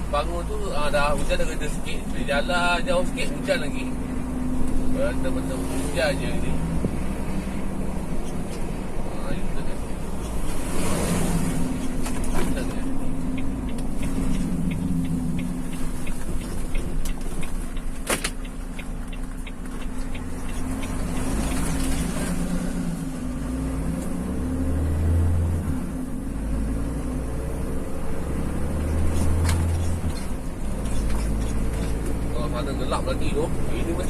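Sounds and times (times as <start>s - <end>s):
rain and tyres on wet road: 0.0s - 34.0s
vehicle engine hum: 0.0s - 34.0s
light regular ticking: 11.8s - 22.0s.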